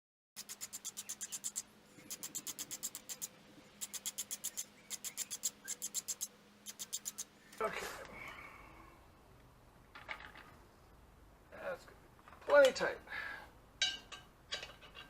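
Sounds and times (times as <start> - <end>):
metal scraping in rapid strokes: 0.4 - 7.3.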